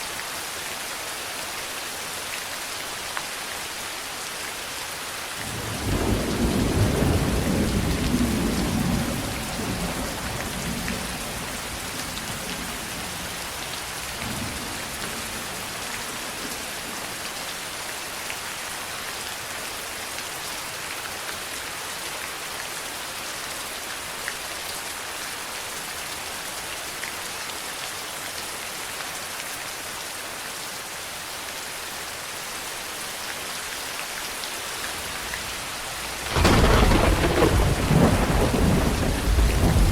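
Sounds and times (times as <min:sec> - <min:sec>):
steady rain: 0:00.0 - 0:39.9
thunder rumbling: 0:05.5 - 0:16.0, 0:35.0 - 0:39.9.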